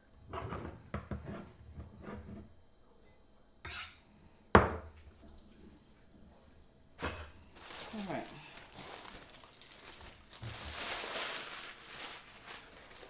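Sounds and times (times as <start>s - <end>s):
kitchenware clattering and knocking: 4.6s - 5.0s
scraping rustle: 7.6s - 13.0s.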